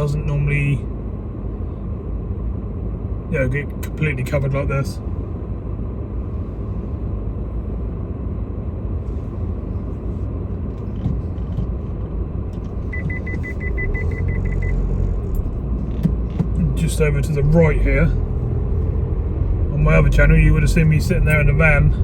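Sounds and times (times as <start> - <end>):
car interior rumble: 0.0 - 22.0
electronic warning beeper: 12.9 - 14.9.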